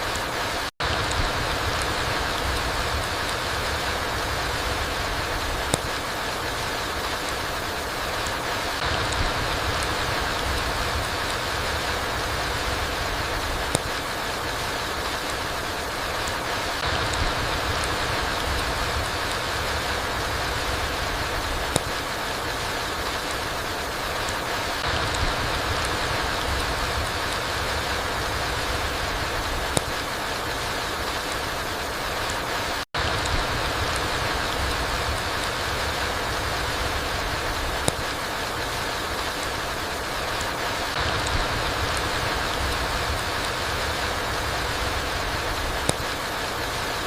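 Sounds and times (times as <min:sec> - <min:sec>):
rain falling through trees: 0:00.0 - 0:47.0
water drips: 0:00.1 - 0:47.0
sharp tick: 0:05.6 - 0:06.0, 0:12.6 - 0:14.0, 0:21.4 - 0:22.0, 0:29.7 - 0:30.1, 0:37.6 - 0:38.2, 0:45.6 - 0:46.2.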